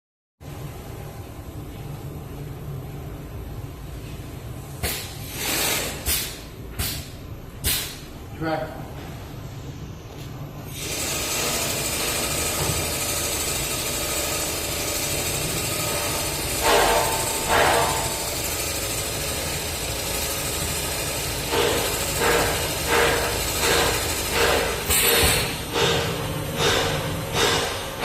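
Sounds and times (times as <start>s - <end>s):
sewing machine whirring: 10.7s - 17.4s.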